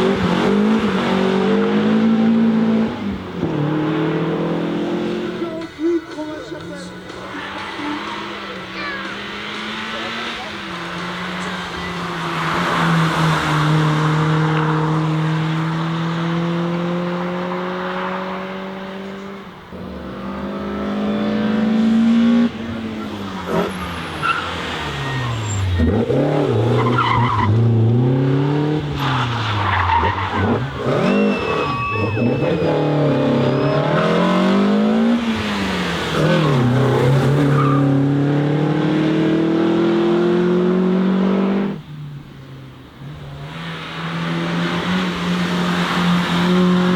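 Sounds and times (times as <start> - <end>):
car engine driven hard: 0.0 - 46.9
tyres squealing: 20.9 - 28.0, 28.6 - 38.0.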